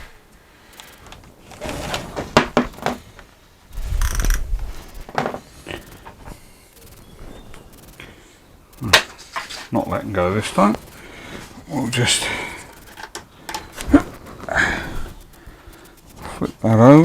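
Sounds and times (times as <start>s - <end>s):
clicks and knocks from tools: 12.7s - 13.9s.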